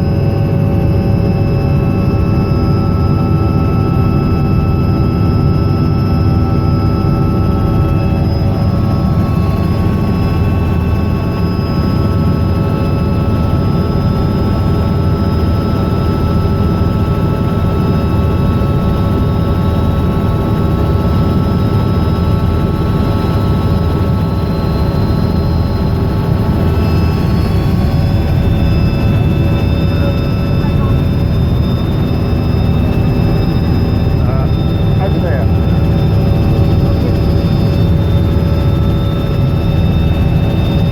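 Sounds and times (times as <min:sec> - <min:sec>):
helicopter turbine and rotor: 0:00.0 - 0:40.9.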